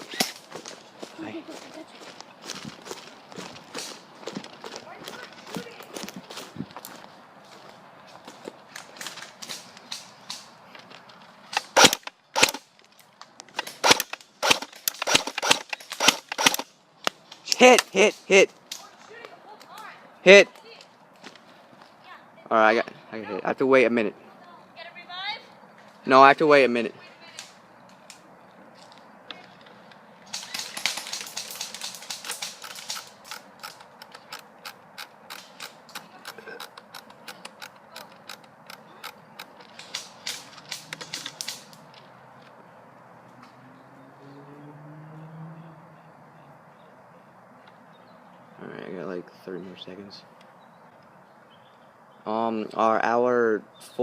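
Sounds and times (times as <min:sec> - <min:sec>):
airsoft gun shots: 0:11.5 - 0:12.6, 0:13.6 - 0:16.6.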